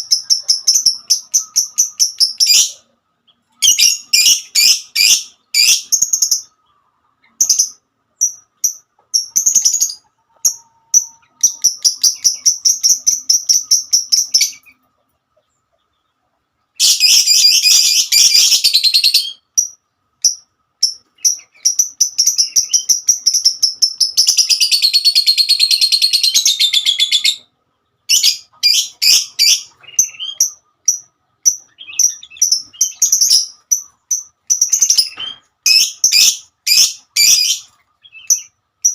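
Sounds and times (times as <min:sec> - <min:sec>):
lovebird chattering: 0:00.0 - 0:02.8, 0:28.1 - 0:38.9.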